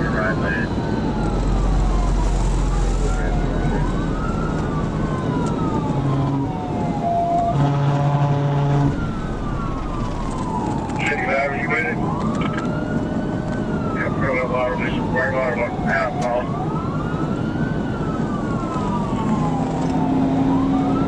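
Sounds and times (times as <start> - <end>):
car engine and road rumble: 0.0 - 21.0
police siren wailing: 0.0 - 21.0
blaring tone: 5.8 - 12.2.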